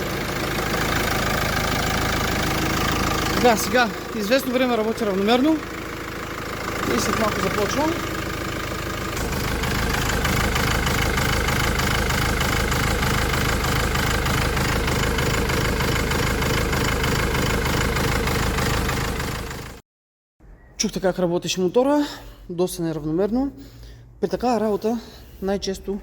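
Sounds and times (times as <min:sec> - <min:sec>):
diesel engine idling unevenly: 0:00.0 - 0:19.8.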